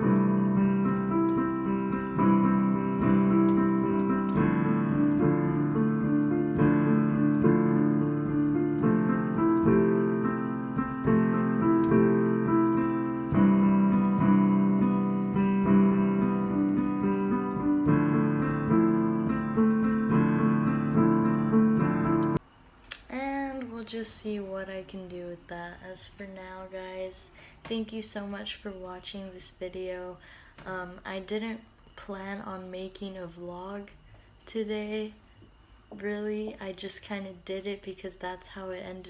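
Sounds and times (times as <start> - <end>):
improvised piano playing: 0.0 - 22.4.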